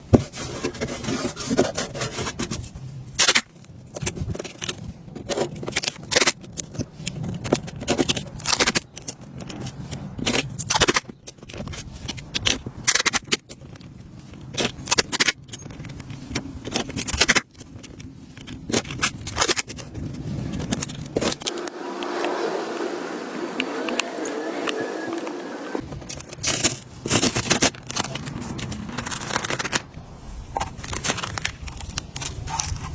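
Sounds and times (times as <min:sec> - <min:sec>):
hand tool scraping drywall: 0:00.2 - 0:02.7.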